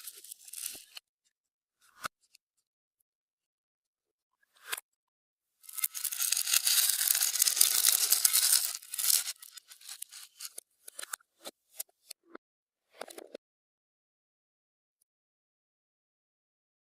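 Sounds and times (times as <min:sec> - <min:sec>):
slime squishing crackle: 0:05.8 - 0:10.4.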